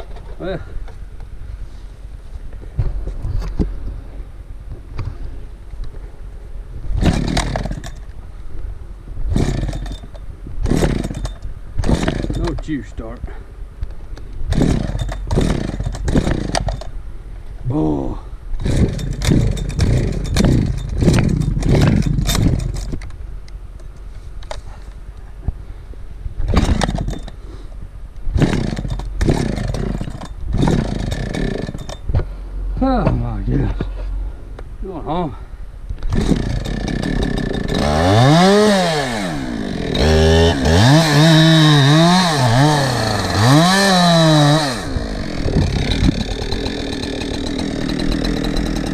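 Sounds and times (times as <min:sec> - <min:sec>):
chainsaw engine sputtering: 0:07.0 - 0:08.0, 0:09.3 - 0:12.8, 0:14.5 - 0:16.9, 0:18.6 - 0:23.0, 0:26.5 - 0:27.4, 0:28.3 - 0:32.0, 0:36.1 - 0:48.9
chainsaw pull-start: 0:07.0 - 0:08.0, 0:09.3 - 0:12.6, 0:14.5 - 0:16.9, 0:18.6 - 0:23.0, 0:26.5 - 0:27.4, 0:28.4 - 0:32.0, 0:36.0 - 0:48.9.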